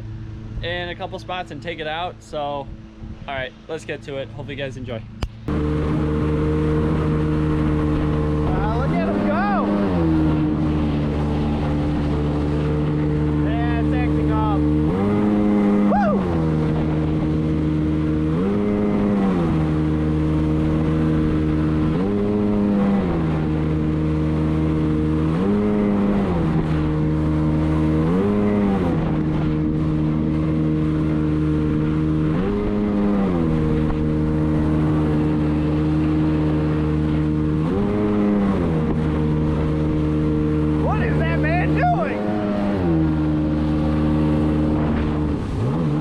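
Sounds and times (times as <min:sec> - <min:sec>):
jet ski engine revving: 0:00.0 - 0:46.0
wind noise: 0:02.6 - 0:03.6
person talking: 0:40.8 - 0:42.8.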